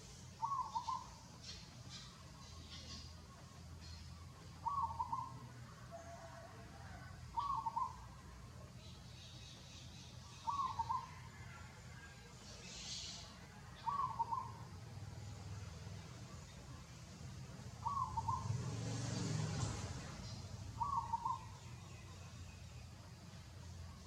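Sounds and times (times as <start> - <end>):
bird calling: 0.3 - 6.3, 7.3 - 8.1, 8.8 - 11.7, 12.6 - 14.8, 17.8 - 18.8, 20.2 - 22.2.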